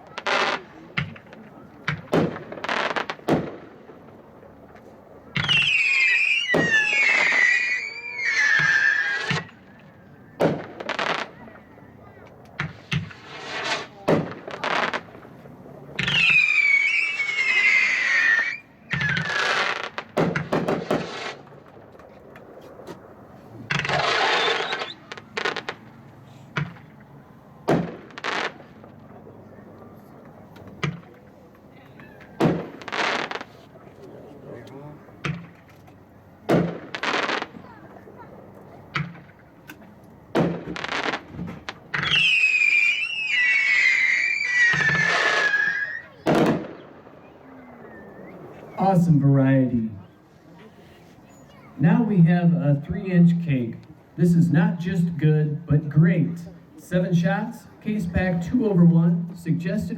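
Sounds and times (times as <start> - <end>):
sharp firework pops: 0.0 - 3.7, 4.7 - 5.8, 6.5 - 7.5, 8.5 - 11.6, 12.2 - 17.5, 18.9 - 23.0, 23.7 - 25.9, 26.5 - 29.0, 30.6 - 31.2, 32.2 - 33.7, 35.2 - 37.8, 38.9 - 43.4, 44.6 - 47.1
firework bursts with crackling hiss: 0.0 - 4.3, 5.4 - 9.7, 10.4 - 11.6, 12.5 - 27.0, 27.7 - 29.0, 32.3 - 33.8, 36.4 - 37.8, 40.3 - 48.8
firework whistle falling in pitch: 5.4 - 9.5, 16.0 - 19.3, 24.0 - 25.0, 42.0 - 46.2.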